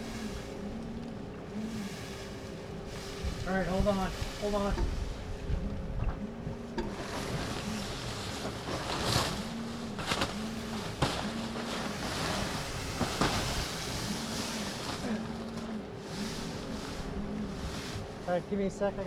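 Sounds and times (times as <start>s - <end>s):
low pulsing hum: 0.0s - 19.0s
rush of wind and water: 0.0s - 19.0s
sharp rustling bursts: 6.9s - 19.0s.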